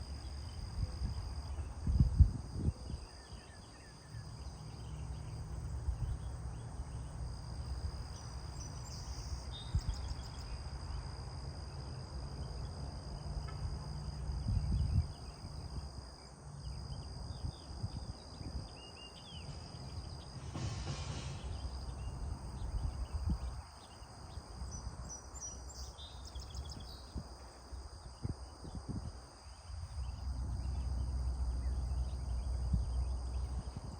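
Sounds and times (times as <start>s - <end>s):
insects trilling: 0.0s - 33.9s.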